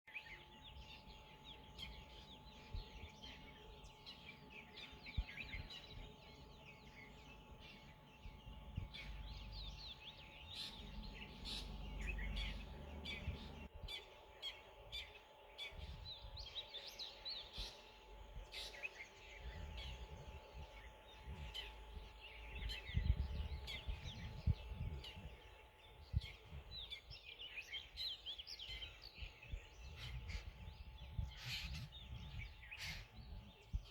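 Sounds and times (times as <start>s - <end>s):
small birds chirping: 0.1s - 33.9s.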